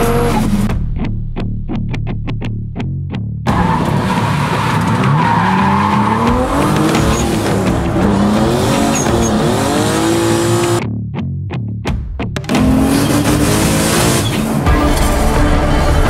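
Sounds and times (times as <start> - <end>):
car engine revving: 0.0 - 0.7, 3.5 - 10.8, 12.4 - 16.0
tyres squealing: 3.5 - 9.5.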